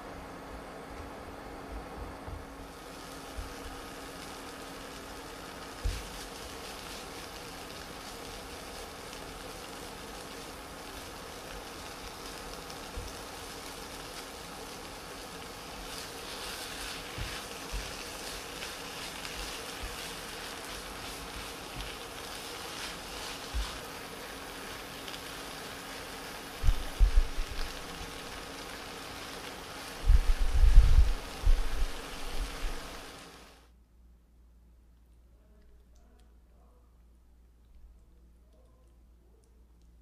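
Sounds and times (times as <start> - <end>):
faint hum: 0.0 - 40.0
food sizzling in a frying pan: 2.4 - 33.7
utensil stirring: 2.9 - 33.3.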